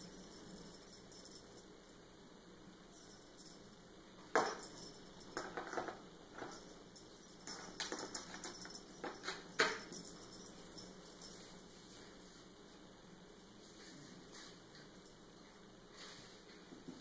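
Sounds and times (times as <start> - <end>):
kitten knocking and clattering: 5.4 - 6.6.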